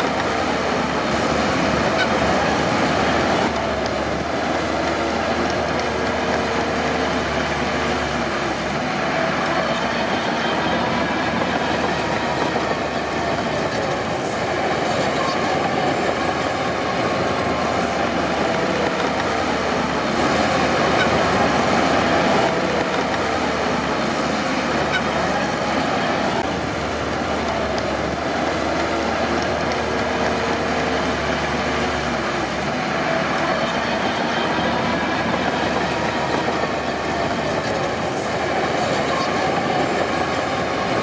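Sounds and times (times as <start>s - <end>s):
bulldozer diesel engine under load: 0.0s - 41.0s
steel tracks clattering: 9.0s - 26.7s, 31.7s - 41.0s.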